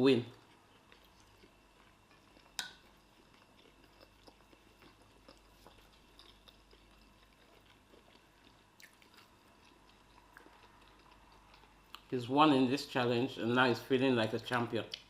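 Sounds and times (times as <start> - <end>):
people chewing food: 0.1 - 12.2, 14.4 - 15.0.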